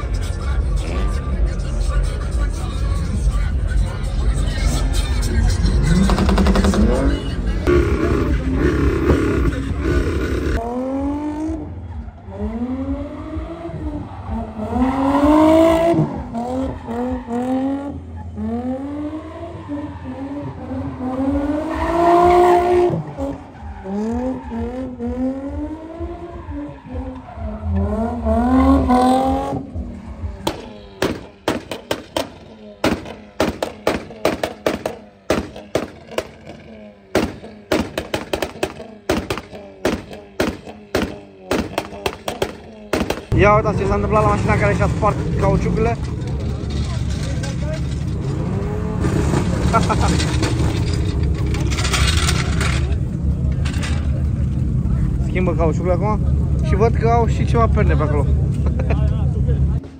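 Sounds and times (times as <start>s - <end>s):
car engine revving: 0.0s - 59.9s
sharp cracks and knocks: 30.5s - 43.3s.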